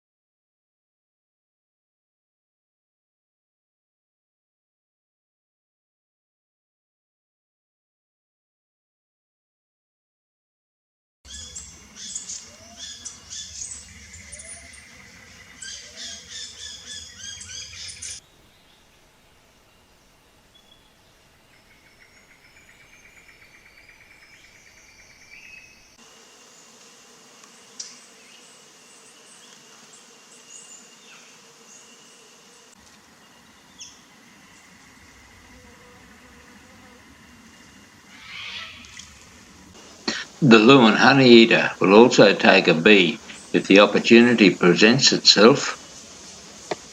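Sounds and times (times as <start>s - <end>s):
bees buzzing: 11.3s - 18.2s, 25.8s - 46.9s
high insect drone: 11.3s - 18.2s, 18.8s - 46.9s
wild birds squawking and chirping: 11.3s - 19.0s, 37.6s - 46.9s.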